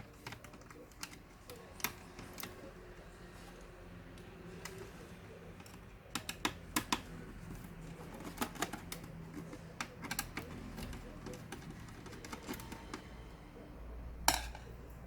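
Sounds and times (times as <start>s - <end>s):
plastic parts clicking: 0.0s - 2.6s, 5.6s - 13.1s.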